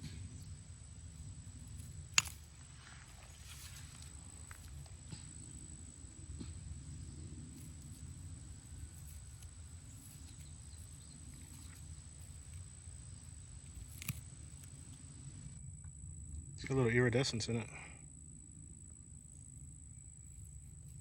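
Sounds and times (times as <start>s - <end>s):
insect trill: 0.0s - 21.0s.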